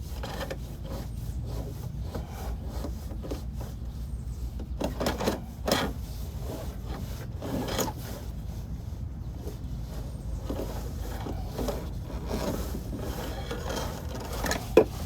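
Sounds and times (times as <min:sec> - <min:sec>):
camera scraping inside duct: 0:04.9 - 0:15.0.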